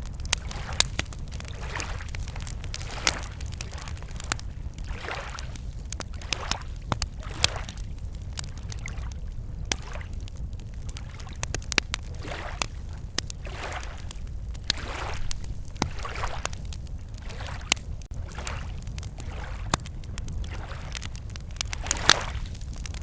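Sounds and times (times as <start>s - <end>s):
campfire crackling and popping: 0.0s - 23.0s
small waves lapping on shore: 0.3s - 8.0s, 8.6s - 10.2s, 12.0s - 22.9s
steady low rumble: 17.8s - 23.0s.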